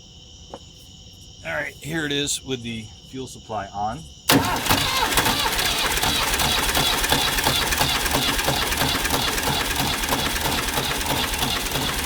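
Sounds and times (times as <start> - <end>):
diesel engine cranking on starter: 4.3 - 12.0
engine cylinder firing: 4.3 - 12.0.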